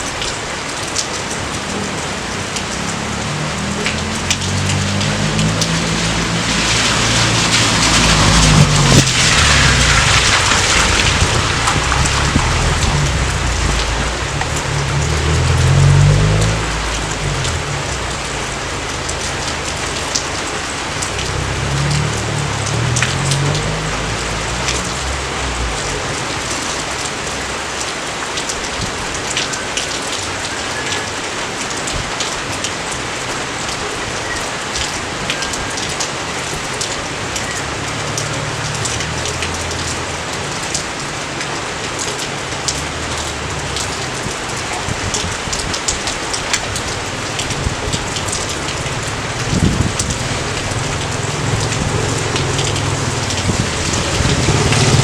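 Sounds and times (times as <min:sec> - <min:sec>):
steady rain hiss: 0:00.0 - 0:55.0
low rumble: 0:01.6 - 0:26.6
sharp drip ticks: 0:09.0 - 0:55.0.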